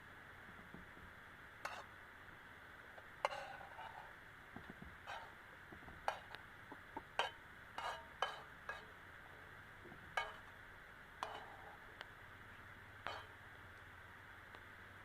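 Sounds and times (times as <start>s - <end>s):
steady frying hiss: 0.0s - 15.0s
metal spatula scraping a pan: 1.6s - 2.0s, 3.2s - 4.1s, 5.0s - 5.4s, 6.0s - 6.4s, 7.1s - 9.0s, 10.1s - 10.5s, 11.2s - 11.8s, 13.0s - 13.4s.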